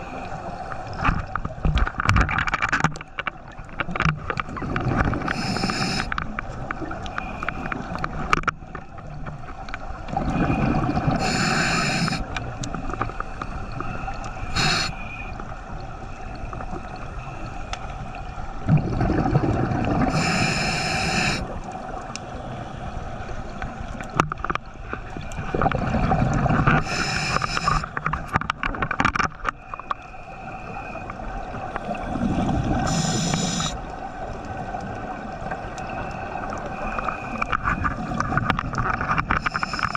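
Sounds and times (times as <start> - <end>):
gurgling exhaled bubbles: 4.4 - 6.1, 10.1 - 12.3, 18.6 - 22.0, 25.4 - 27.9, 31.6 - 33.8
air hissing through regulator: 5.3 - 6.1, 11.2 - 12.2, 14.4 - 15.3, 20.1 - 21.5, 26.8 - 27.9, 32.8 - 33.8, 39.4 - 39.9.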